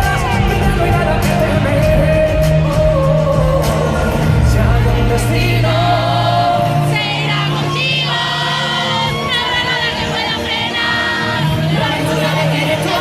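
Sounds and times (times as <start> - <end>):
live band playing pop song: 0.0 - 13.0
person singing: 0.0 - 13.0
sustained bass: 0.0 - 13.0.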